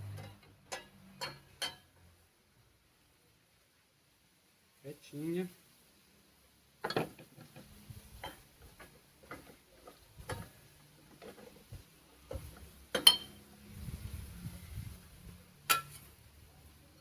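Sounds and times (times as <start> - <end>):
metallic clicks and knocks: 0.0 - 2.0
ringing metal clank: 13.0 - 13.4.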